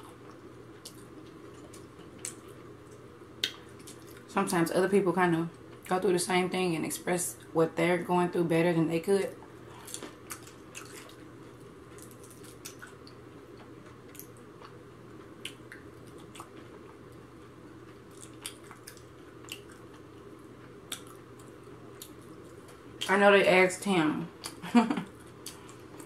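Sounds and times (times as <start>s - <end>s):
faint steady hum: 0.0s - 26.0s
person chewing: 9.7s - 17.0s, 17.8s - 23.1s, 25.2s - 26.0s.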